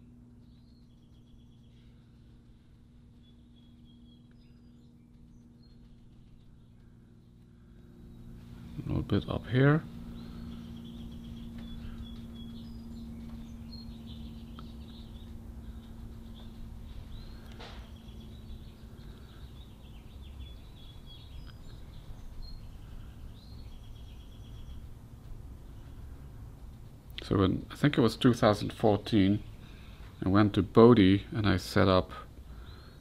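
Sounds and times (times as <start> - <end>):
faint high bird chirps: 0.0 - 25.0
low steady hum: 0.0 - 33.0.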